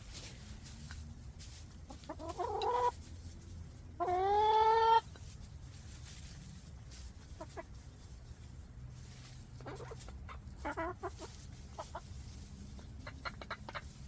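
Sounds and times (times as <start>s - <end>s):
hens calling: 1.6s - 3.1s, 3.8s - 5.3s, 7.2s - 8.5s, 9.2s - 14.0s.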